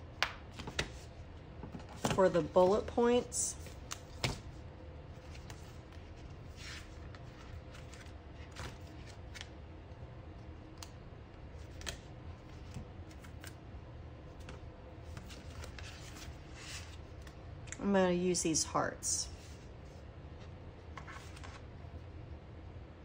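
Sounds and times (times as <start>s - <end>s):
paper rustling: 5.1s - 9.5s, 14.4s - 17.4s, 19.4s - 21.7s.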